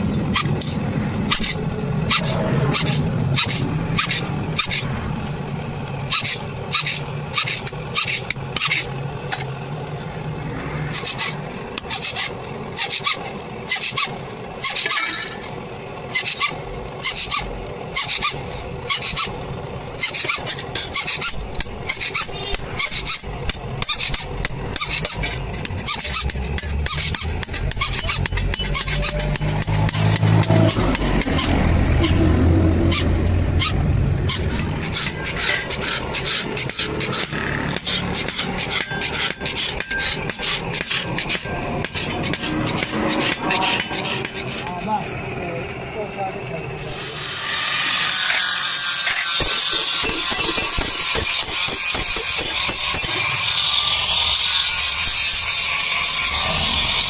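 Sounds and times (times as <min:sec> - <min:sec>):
hand tool strokes on blade: 0:00.3 - 0:05.0, 0:05.8 - 0:09.5, 0:10.6 - 0:15.4, 0:16.1 - 0:19.4, 0:20.0 - 0:45.0
low engine hum: 0:25.6 - 0:35.4.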